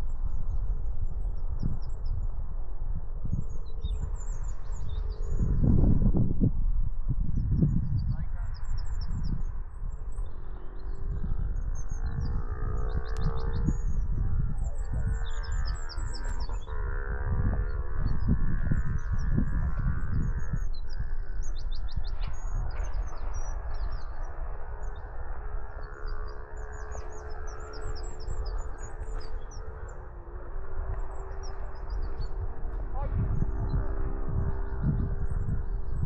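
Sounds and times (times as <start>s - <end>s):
low drone: 0.0s - 36.0s
songbirds chirping and trilling: 0.0s - 36.0s.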